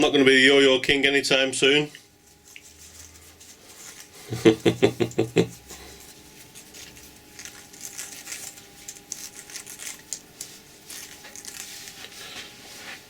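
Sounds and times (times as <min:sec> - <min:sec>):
faint steady hum: 0:00.0 - 0:13.0
soft rustling and scraping: 0:01.8 - 0:04.3, 0:05.6 - 0:13.0.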